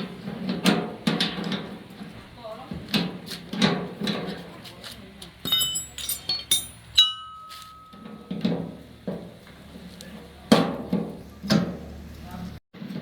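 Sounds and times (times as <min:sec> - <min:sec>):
light metallic clinks: 0:05.5 - 0:08.2
ringing metallic clink: 0:05.5 - 0:08.3.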